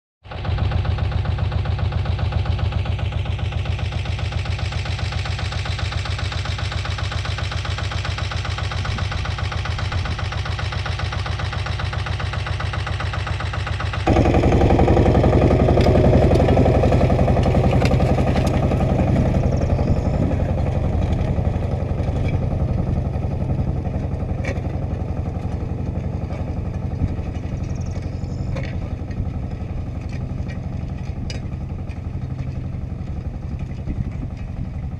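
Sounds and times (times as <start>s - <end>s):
tractor engine running: 0.2s - 34.9s
clicks and rattles: 23.9s - 34.7s.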